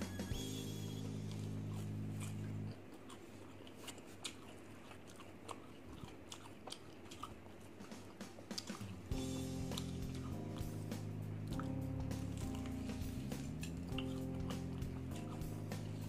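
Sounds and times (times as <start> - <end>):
background music with low beat: 0.0 - 2.7, 7.8 - 16.0
person chewing crunchy food: 1.2 - 16.0.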